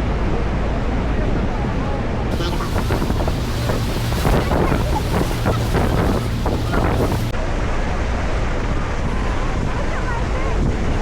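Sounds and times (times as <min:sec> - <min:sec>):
wind buffeting microphone: 0:02.3 - 0:07.4
rushing water: 0:02.3 - 0:07.6
boat engine rumble: 0:02.3 - 0:08.2.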